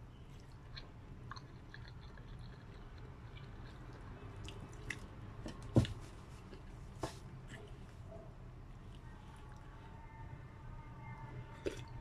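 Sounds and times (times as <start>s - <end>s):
person chewing noodles: 0.3s - 5.2s, 11.5s - 12.0s.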